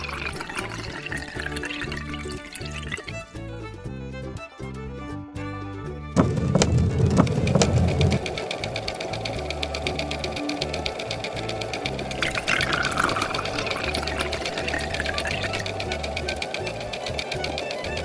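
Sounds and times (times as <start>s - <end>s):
small machine clattering: 6.2s - 18.0s.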